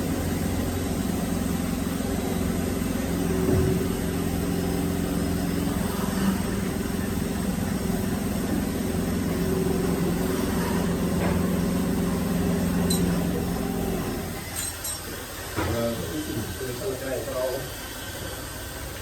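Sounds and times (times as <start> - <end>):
woodworking machine motor humming: 0.0 - 14.6.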